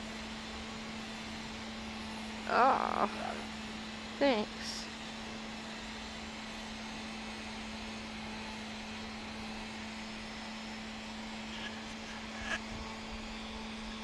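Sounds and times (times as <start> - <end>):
steady background drone: 8.1 - 14.0.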